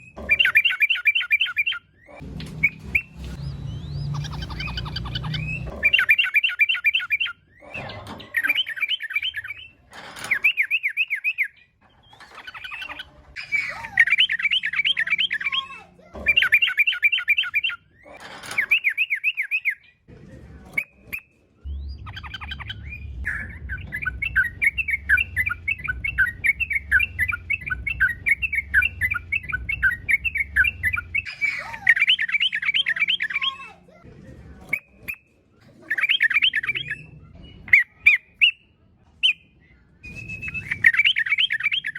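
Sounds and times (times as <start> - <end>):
bulbul chattering song: 0.0 - 9.7, 12.5 - 17.9, 21.6 - 33.8
low rumble: 21.6 - 31.3.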